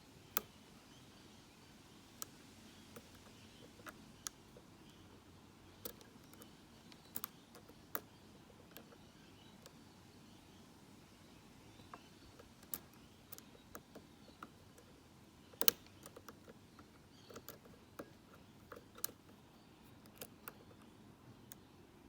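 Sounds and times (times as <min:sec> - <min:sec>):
lock pick clicking in padlock: 0:05.8 - 0:09.0, 0:15.6 - 0:21.7.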